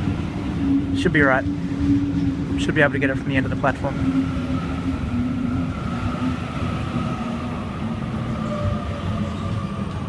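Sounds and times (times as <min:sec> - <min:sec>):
train rumbling: 0:00.0 - 0:10.0.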